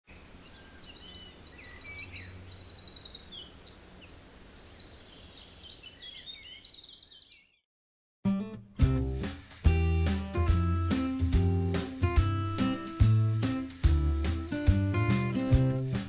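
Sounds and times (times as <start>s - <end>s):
birds chirping and trilling: 0.1s - 7.6s
strummed guitar: 8.3s - 16.0s.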